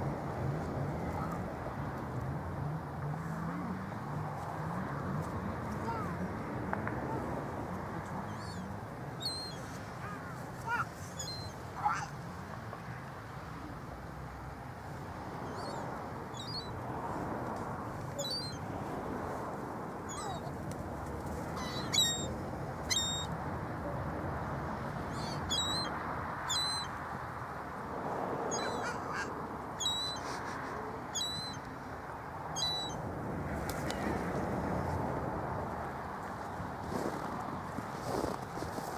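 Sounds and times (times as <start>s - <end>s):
water birds calling: 8.0s - 12.3s, 15.2s - 17.2s, 18.1s - 18.9s, 19.8s - 20.6s, 21.4s - 23.4s, 24.9s - 27.0s, 28.3s - 31.8s, 32.4s - 33.1s.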